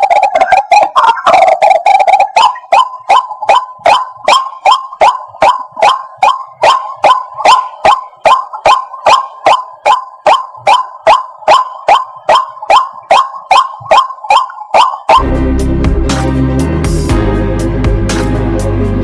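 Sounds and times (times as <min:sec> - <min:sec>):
waterhen calling: 0:00.0 - 0:15.2.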